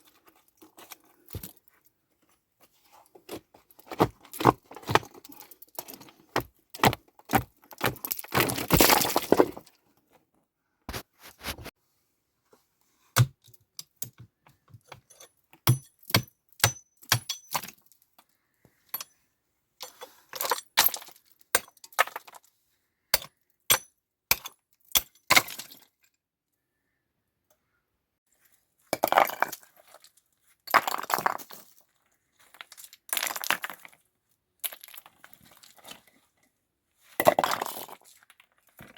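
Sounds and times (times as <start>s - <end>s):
stones scraping: 3.3s - 9.7s
stones knocking together: 3.8s - 5.2s, 5.9s - 9.6s.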